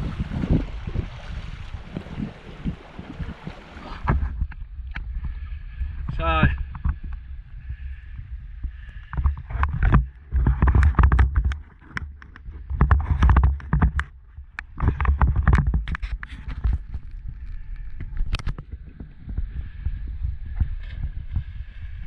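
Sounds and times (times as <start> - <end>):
wind buffeting microphone: 0.0 - 22.0
sharp clicks and crunches: 9.2 - 18.7.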